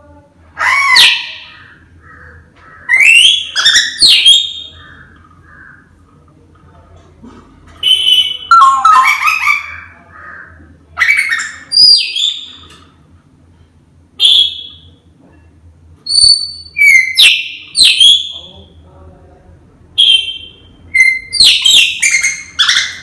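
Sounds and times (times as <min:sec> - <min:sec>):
parrot whistling and calling: 0:00.6 - 0:01.6, 0:02.9 - 0:04.8, 0:07.9 - 0:10.0, 0:11.0 - 0:12.6, 0:14.2 - 0:14.9, 0:16.1 - 0:18.4, 0:20.0 - 0:23.0.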